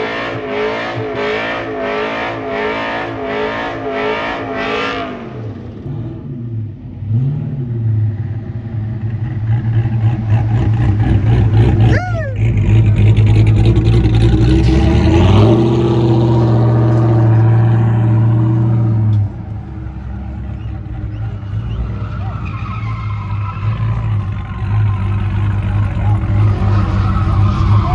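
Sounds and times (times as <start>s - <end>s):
truck engine revving hard: 0.0s - 8.0s, 9.3s - 27.9s.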